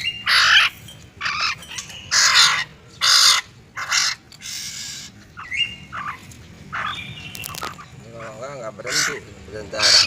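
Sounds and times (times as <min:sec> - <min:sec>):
bird harsh raspy calls: 0:00.0 - 0:10.0.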